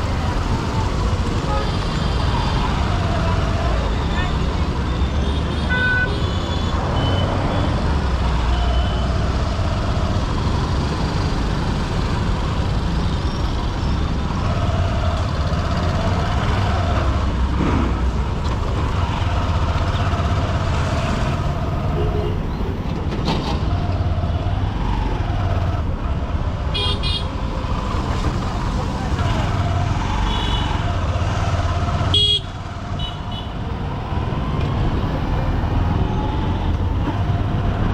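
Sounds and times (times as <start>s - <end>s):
surrounding traffic noise: 0.0s - 37.9s
vehicle horns: 5.2s - 7.8s, 26.7s - 27.6s, 29.2s - 31.0s, 31.9s - 33.6s.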